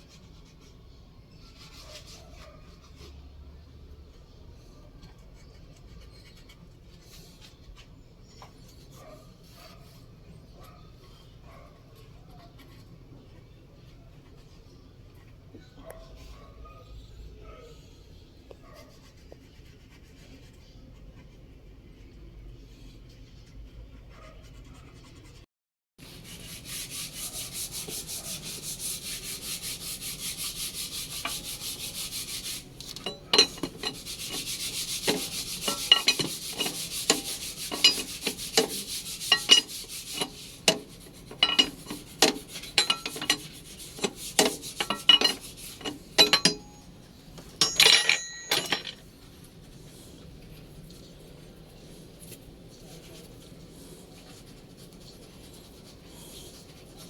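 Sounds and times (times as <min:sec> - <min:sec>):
rapid scraping: 0:26.0 - 0:46.8
ringing clatter: 0:44.4 - 0:46.9, 0:47.6 - 0:49.0.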